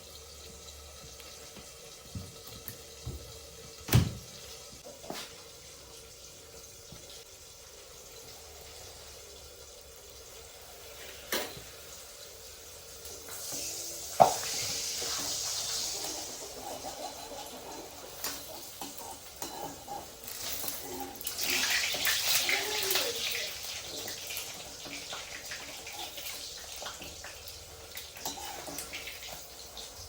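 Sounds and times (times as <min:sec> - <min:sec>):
water running from a tap: 0:00.0 - 0:30.0
dishes clanking: 0:18.2 - 0:22.3, 0:28.2 - 0:29.1.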